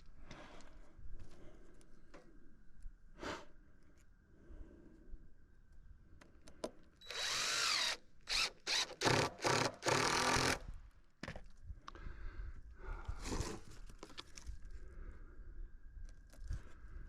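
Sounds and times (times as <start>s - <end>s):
power drill running: 7.0s - 10.6s.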